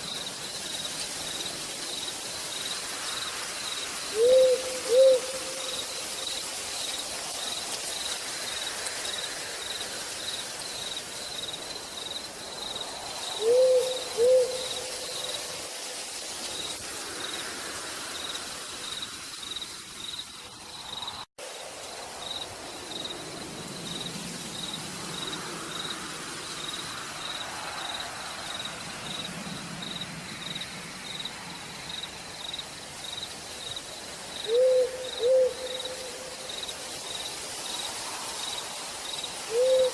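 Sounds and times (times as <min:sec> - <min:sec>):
cricket chirping: 0:00.0 - 0:39.9
steady rain hiss: 0:00.0 - 0:39.9
owl hooting: 0:04.1 - 0:05.8, 0:13.4 - 0:15.1, 0:34.4 - 0:36.2, 0:39.5 - 0:39.9.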